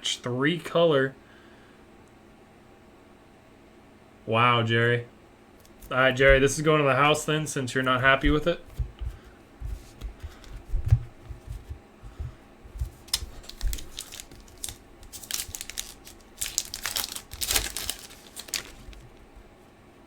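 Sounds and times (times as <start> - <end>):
dull handling knocks: 6.2 - 6.7, 8.2 - 13.0
wrapper tearing and crinkling: 12.8 - 19.2.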